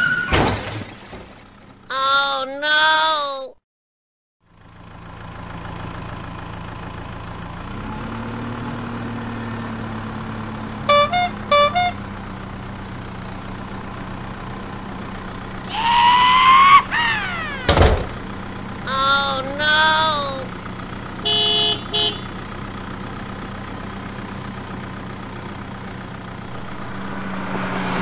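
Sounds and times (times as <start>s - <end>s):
truck engine running: 4.5s - 28.0s
horn toots: 10.9s - 12.0s, 21.2s - 22.4s.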